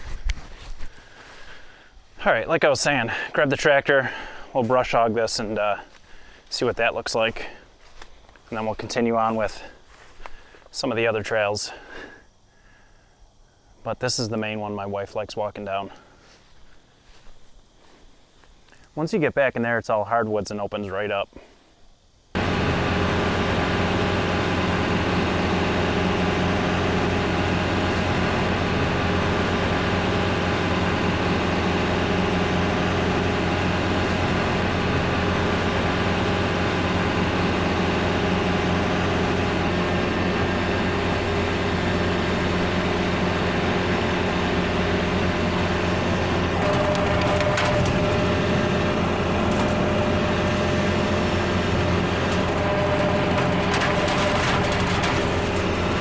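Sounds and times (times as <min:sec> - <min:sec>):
tractor diesel engine running: 0:22.4 - 0:56.0.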